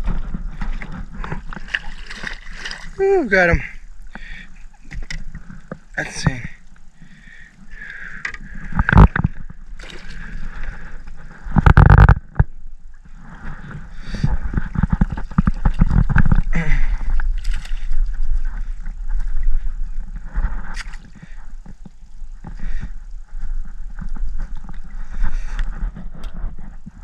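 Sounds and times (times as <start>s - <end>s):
knocks and thumps in boat: 0.0s - 6.6s, 8.2s - 12.6s, 13.2s - 19.5s
water sloshing and gurgling: 0.0s - 27.0s.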